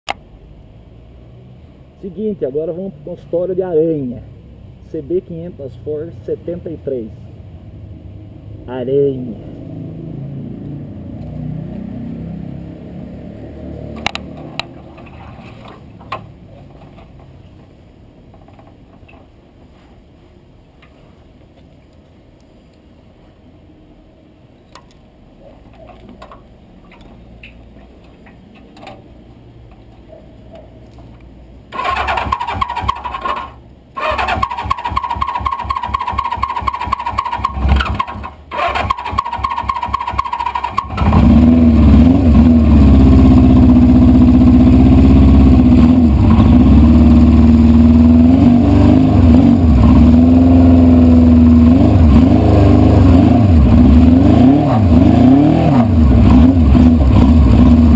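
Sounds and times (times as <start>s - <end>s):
electric starter cranking: 31.7s - 41.5s.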